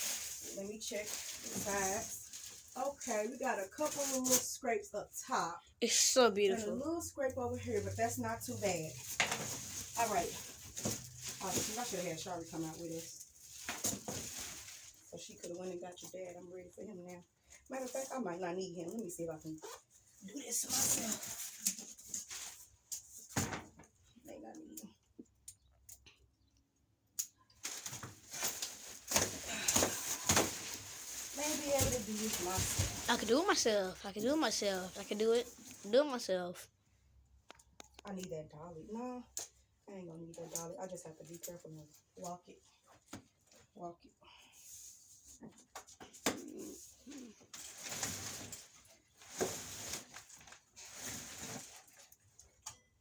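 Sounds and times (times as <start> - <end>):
rustling and scraping handling noise: 0.0 - 4.9, 6.5 - 24.1, 27.6 - 36.6, 44.5 - 52.7.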